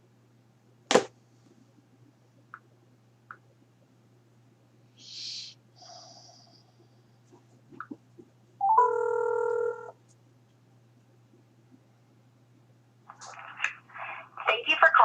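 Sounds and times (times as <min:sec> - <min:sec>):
phone ringing tone: 0:08.6 - 0:10.0.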